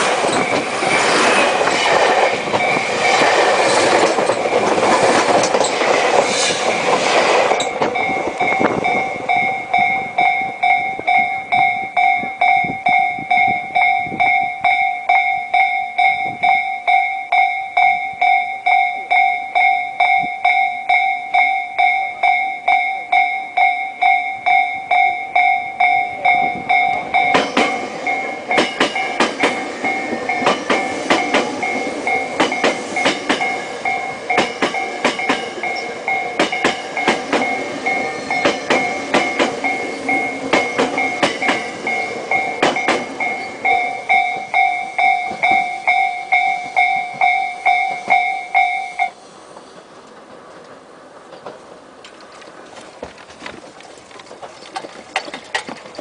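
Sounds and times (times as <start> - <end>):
train wheels clacking: 0.0 - 56.0
level crossing bell ringing: 7.6 - 49.2.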